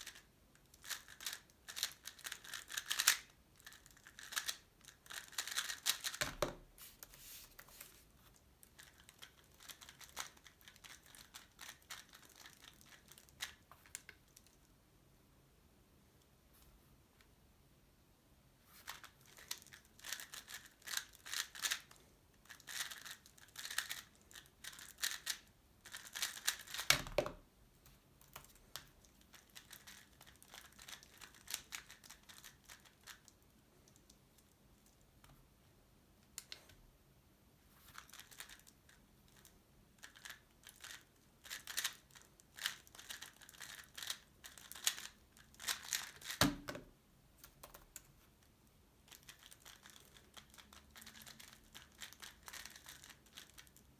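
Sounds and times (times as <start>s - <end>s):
puzzle cube clicking: 0.8s - 3.2s, 5.1s - 6.4s, 26.0s - 27.2s.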